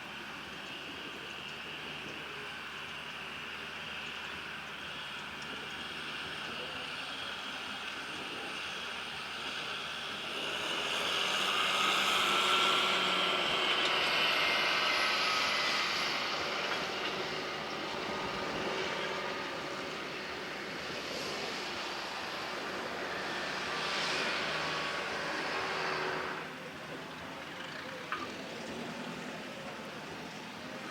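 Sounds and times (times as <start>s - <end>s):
tractor engine running: 0.0s - 30.9s.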